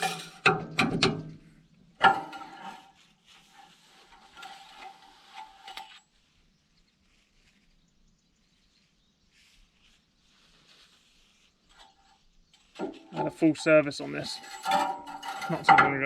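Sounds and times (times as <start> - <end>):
metal clank: 0.0 - 2.8, 14.0 - 16.0
metal clinking and scraping: 0.0 - 6.2, 11.6 - 16.0.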